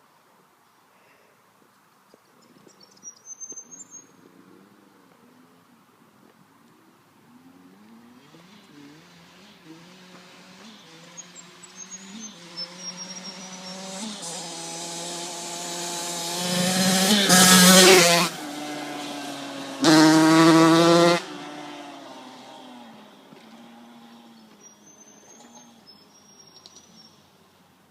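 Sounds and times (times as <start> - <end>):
dirt bike riding past: 7.2 - 27.2.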